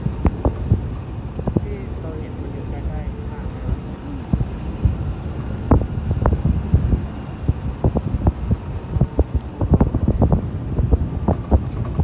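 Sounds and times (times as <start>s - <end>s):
low thumps on microphone: 0.0s - 1.8s, 3.7s - 12.0s.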